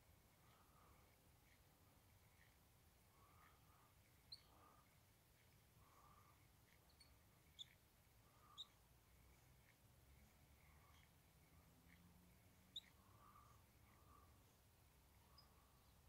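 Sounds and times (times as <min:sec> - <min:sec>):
faint bird calls: 0:02.3 - 0:08.8, 0:09.4 - 0:14.5.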